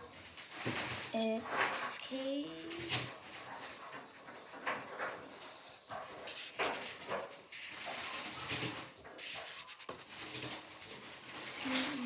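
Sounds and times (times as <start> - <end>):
marker scratching on paper: 3.3 - 7.9, 9.2 - 10.3.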